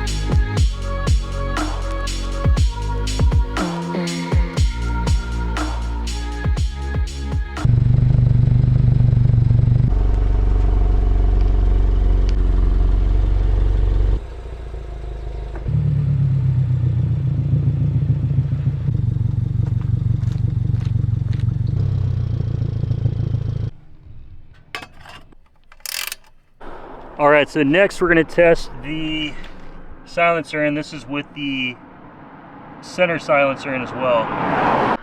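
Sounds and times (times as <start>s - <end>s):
car engine running: 6.4s - 33.9s.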